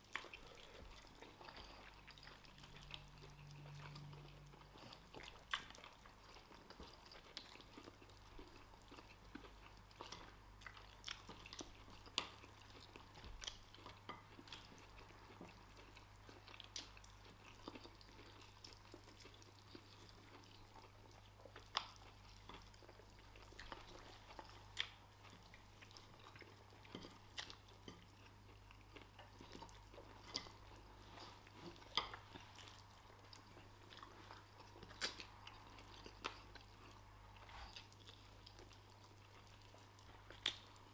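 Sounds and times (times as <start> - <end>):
faint steady hum: 0.0 - 40.9
people chewing food: 0.0 - 40.9.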